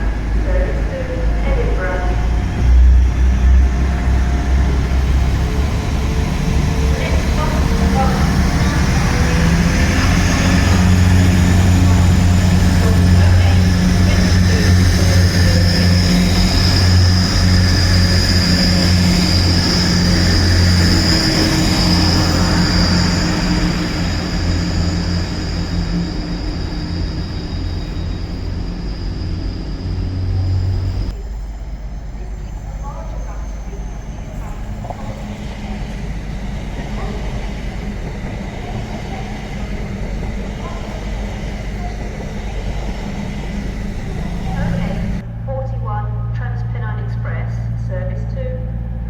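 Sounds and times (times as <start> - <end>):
train high whine: 0.0 - 49.0
train low hum: 0.0 - 49.0
voices in background: 32.0 - 48.7.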